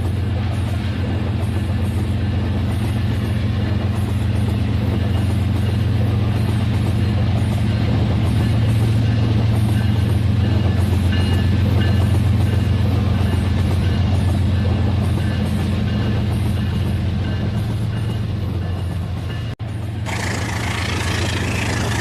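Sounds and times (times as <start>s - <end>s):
toy train motor humming: 20.1s - 22.0s.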